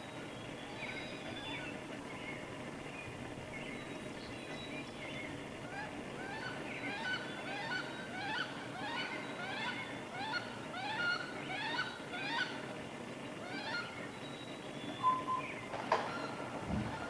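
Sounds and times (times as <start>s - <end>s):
geese honking: 5.6s - 12.7s.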